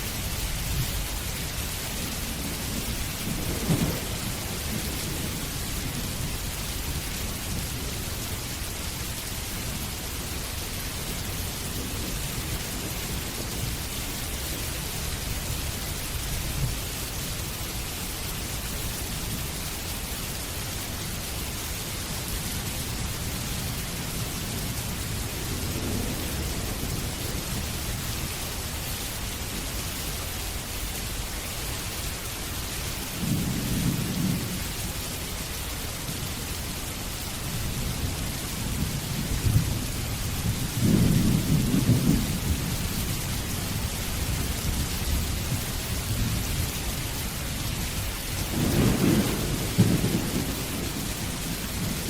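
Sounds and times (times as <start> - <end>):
heavy rain: 0.0 - 52.0
thunder rumbling: 0.2 - 8.7, 23.0 - 28.8, 37.5 - 52.0.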